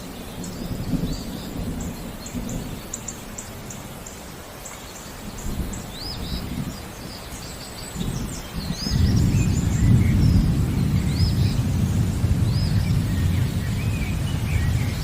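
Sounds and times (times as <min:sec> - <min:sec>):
low rolling thunder: 0:00.0 - 0:03.7, 0:08.0 - 0:15.0
birds chirping: 0:00.0 - 0:15.0
steady rain: 0:00.0 - 0:15.0.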